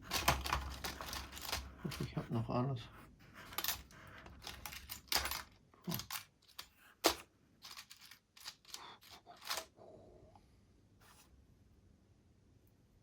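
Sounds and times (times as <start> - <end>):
small metal parts clattering: 0.0 - 2.2, 3.4 - 9.7.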